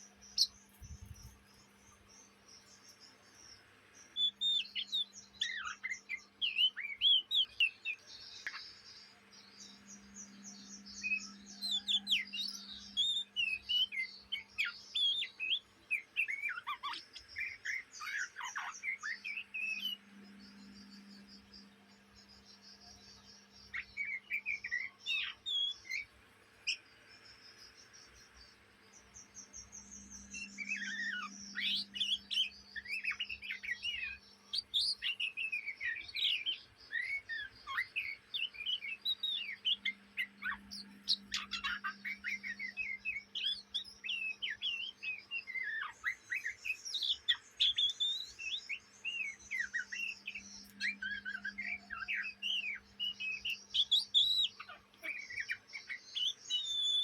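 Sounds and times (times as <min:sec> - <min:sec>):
steady low hum: 0:00.0 - 0:03.6, 0:19.8 - 0:23.8
bird twittering: 0:00.0 - 0:57.0.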